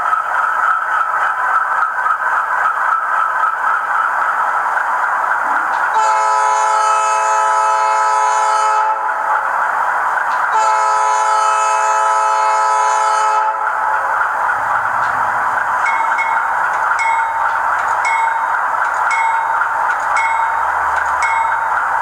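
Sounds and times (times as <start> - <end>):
model locomotive running sound: 0.0 - 22.0
multi-note train horn blasts: 5.9 - 9.2, 10.5 - 13.9.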